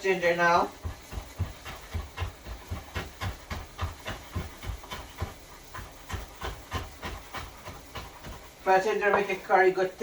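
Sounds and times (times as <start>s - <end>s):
knife chopping on cutting board: 0.8s - 8.5s.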